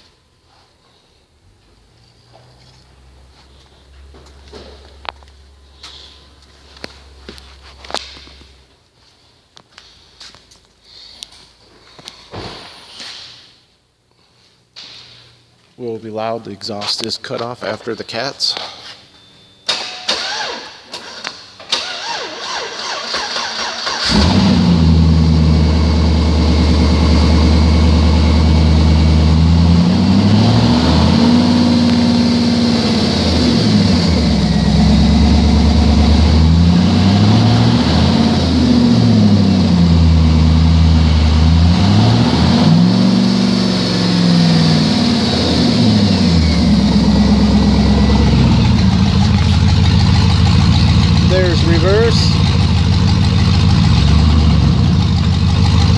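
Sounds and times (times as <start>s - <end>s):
engine revving and idling: 22.0s - 55.9s.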